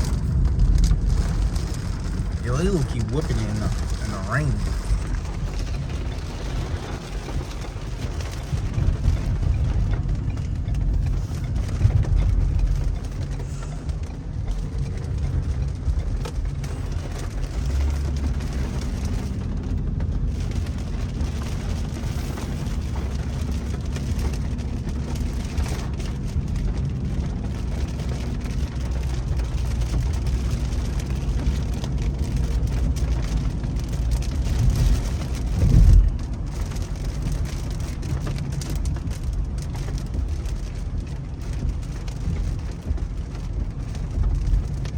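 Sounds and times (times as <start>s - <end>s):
car engine hum: 0.0s - 44.9s
rain on a car: 0.0s - 44.9s
road noise: 0.0s - 44.9s.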